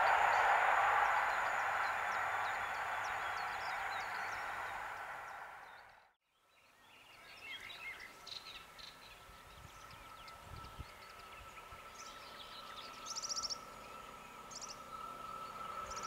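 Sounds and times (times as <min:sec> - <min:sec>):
birds chirping: 0:00.0 - 0:06.0
passing train rolling noise: 0:00.0 - 0:06.1, 0:10.0 - 0:16.0.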